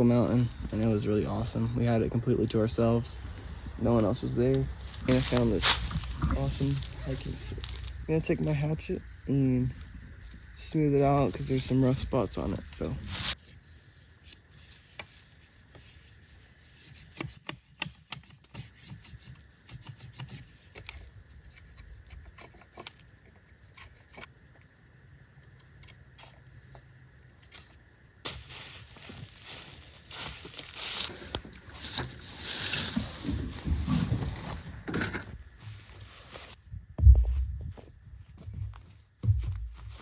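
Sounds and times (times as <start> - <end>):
hatchet shaving wooden stick: 15.7 - 23.0.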